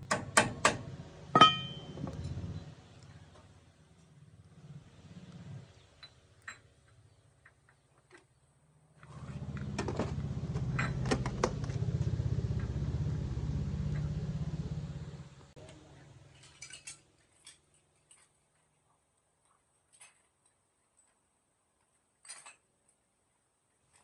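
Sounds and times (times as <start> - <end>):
sharp metal clinks: 1.4 - 2.0
motor running: 9.1 - 15.5.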